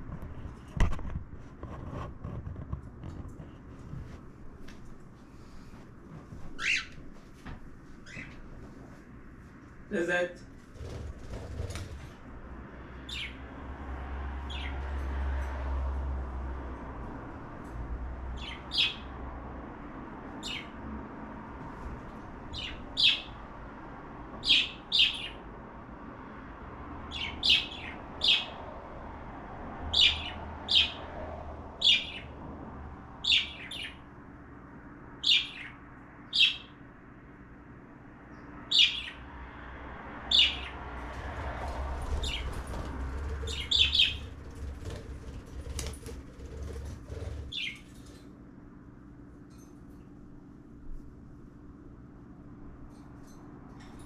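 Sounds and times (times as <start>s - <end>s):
low background hum: 0.0s - 54.0s
cockatiel chirping: 6.6s - 7.0s, 43.4s - 44.3s.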